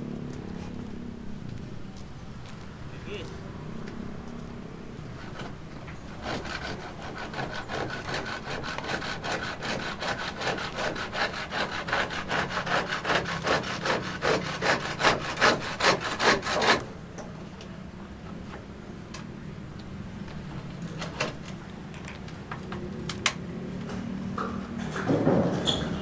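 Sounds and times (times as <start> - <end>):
hand saw cutting wood: 5.2 - 17.0.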